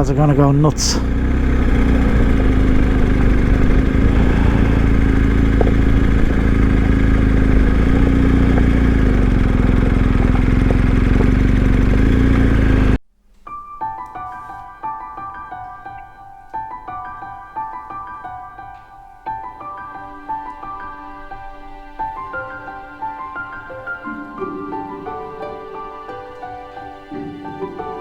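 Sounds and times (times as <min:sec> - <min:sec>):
motorcycle engine running: 0:00.0 - 0:13.0
soft piano music: 0:13.4 - 0:28.0.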